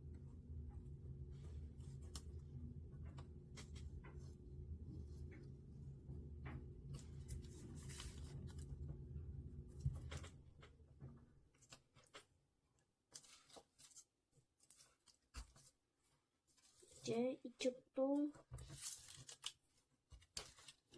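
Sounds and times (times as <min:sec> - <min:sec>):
low steady hum: 0:00.0 - 0:12.3.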